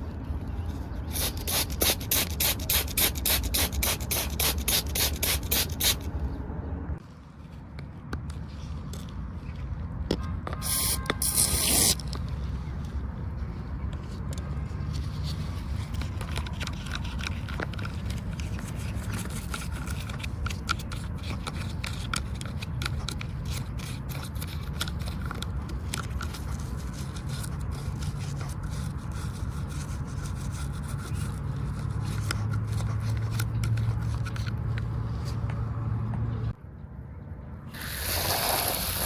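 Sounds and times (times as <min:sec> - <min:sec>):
scrubbing on toy car: 0:01.0 - 0:06.1, 0:10.6 - 0:35.4, 0:37.8 - 0:39.0.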